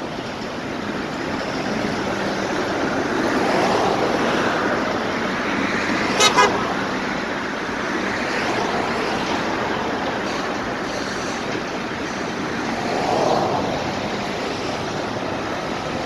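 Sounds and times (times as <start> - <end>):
road traffic passing: 0.0 - 16.0
car horn toot: 6.1 - 6.9.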